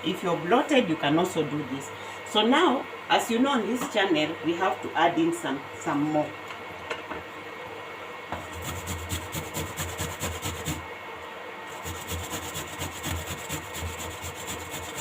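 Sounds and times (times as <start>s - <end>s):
ginger being grated: 8.4s - 10.8s, 11.7s - 15.0s.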